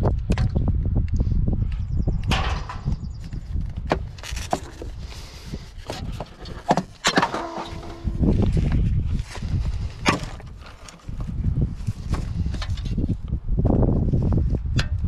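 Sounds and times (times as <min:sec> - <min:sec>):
metal and plastic parts clattering: 0:03.8 - 0:08.3, 0:10.1 - 0:11.2
low rumble: 0:07.4 - 0:14.6.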